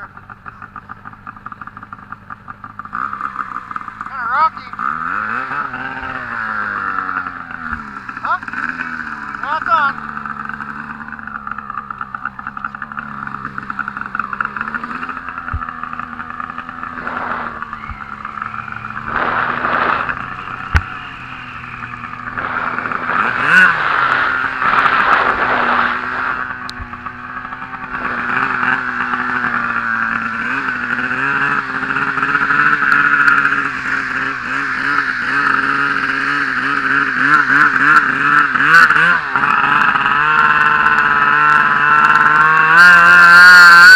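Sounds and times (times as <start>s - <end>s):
snowmobile engine revving: 0.0s - 43.9s.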